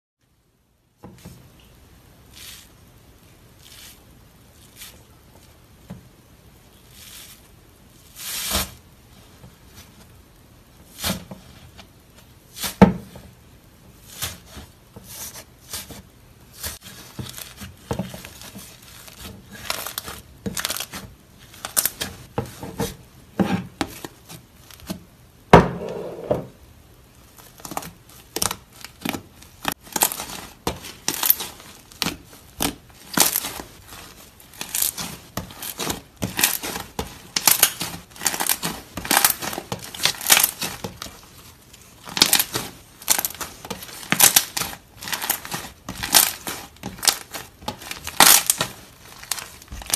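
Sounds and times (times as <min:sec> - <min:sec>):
slime crust crackling and snapping: 0:16.7 - 0:22.2, 0:27.3 - 0:49.9.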